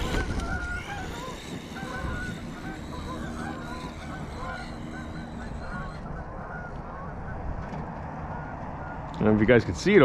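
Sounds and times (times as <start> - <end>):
geese honking: 0.0 - 9.7.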